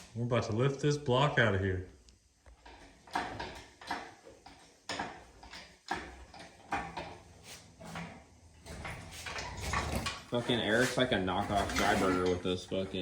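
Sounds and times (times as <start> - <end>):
metallic chain clunks and clicks: 2.6 - 12.7.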